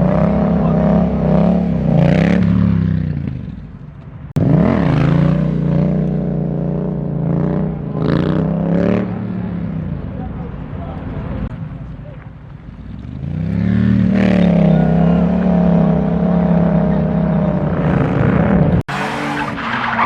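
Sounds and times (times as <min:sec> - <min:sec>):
car engine revving: 0:13.0 - 0:20.0.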